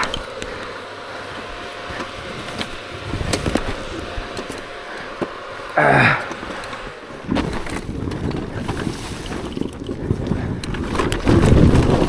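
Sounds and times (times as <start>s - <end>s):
two-stroke dirt bike engine: 0.0s - 12.0s
bike knocking over rocks: 6.1s - 12.0s.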